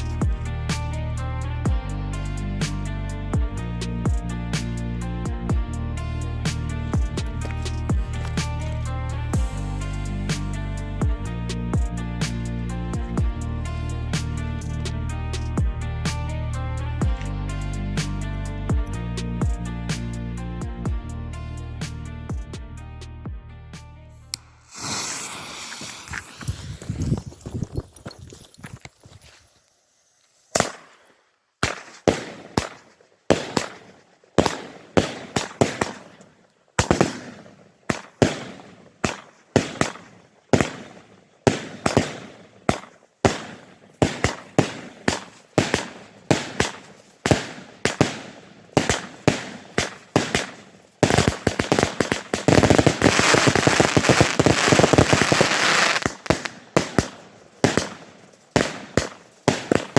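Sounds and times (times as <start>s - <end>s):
fireworks crackling and pops: 6.6s - 9.6s, 24.4s - 59.9s
fireworks shots: 24.6s - 27.1s, 30.5s - 59.9s.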